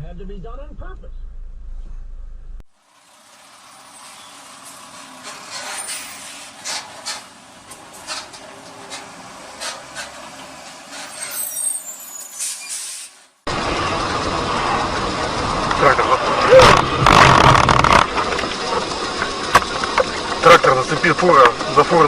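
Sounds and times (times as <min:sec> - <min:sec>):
vehicle road rumble: 0:00.0 - 0:22.0
high squeal: 0:03.6 - 0:04.6, 0:05.3 - 0:06.8, 0:10.9 - 0:13.2
sharp clicks and knocks: 0:16.7 - 0:20.4.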